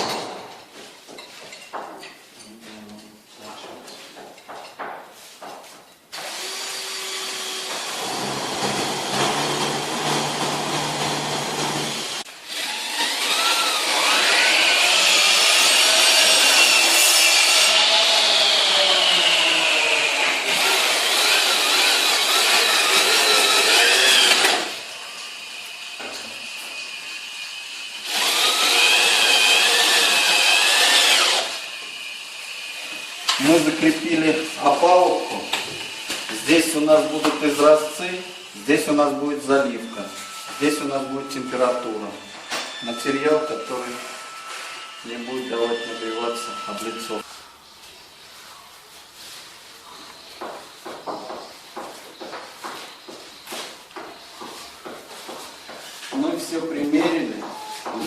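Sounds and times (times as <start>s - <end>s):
angle grinder grinding tile: 6.2s - 47.5s.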